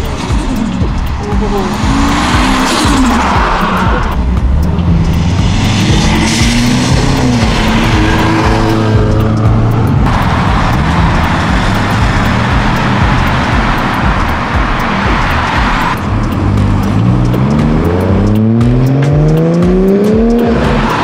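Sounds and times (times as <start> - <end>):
car engine revving through gears: 0.0 - 21.0.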